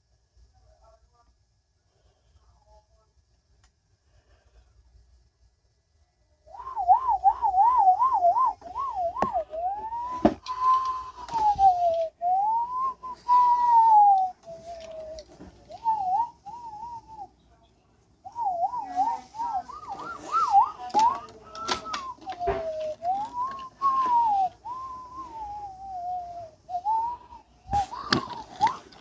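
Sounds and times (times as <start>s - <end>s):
person whistling siren imitation: 6.5s - 17.3s, 18.3s - 28.9s.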